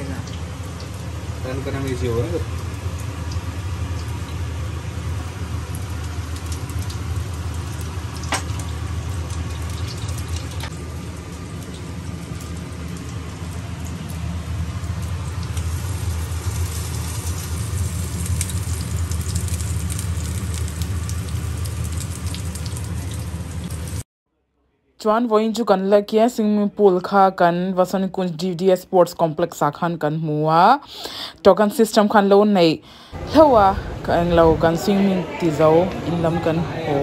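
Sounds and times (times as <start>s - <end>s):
steady low hum: 0.0s - 24.0s, 33.0s - 37.0s
meat sizzling in a grill pan: 14.9s - 24.0s.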